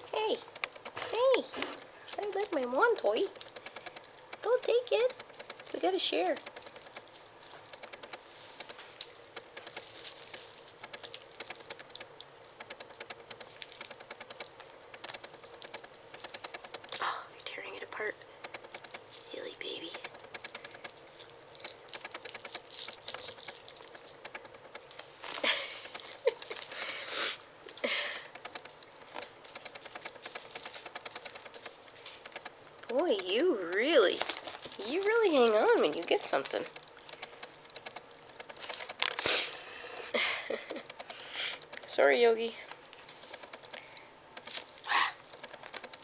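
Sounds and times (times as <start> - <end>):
scratchy rustling: 0.0 - 27.4, 28.4 - 43.8
kitten chewing a toy: 0.6 - 33.0.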